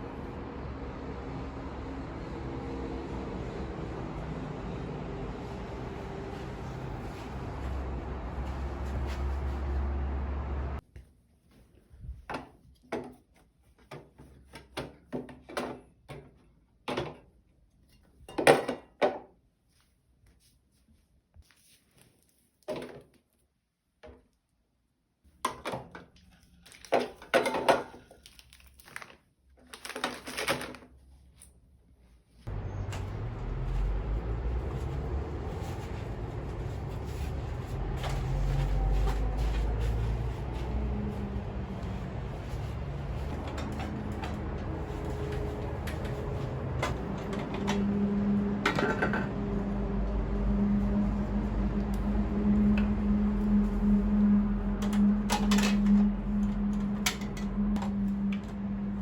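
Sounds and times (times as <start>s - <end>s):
low rumble: 32.5s - 59.0s
objects knocking and clattering: 48.6s - 49.4s.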